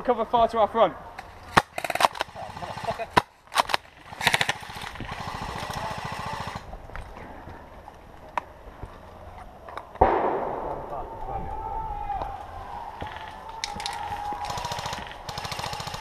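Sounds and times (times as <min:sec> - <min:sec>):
airsoft guns firing: 0:01.5 - 0:06.7, 0:10.0 - 0:11.3, 0:13.0 - 0:16.0.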